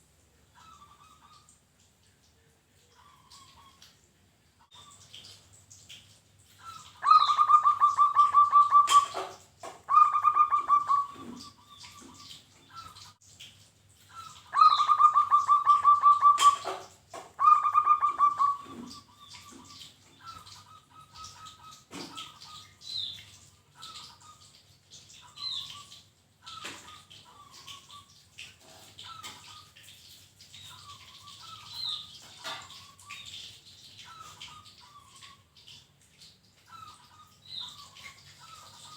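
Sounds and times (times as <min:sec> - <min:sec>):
dove trilling coos: 0:06.7 - 0:12.3, 0:14.2 - 0:22.6.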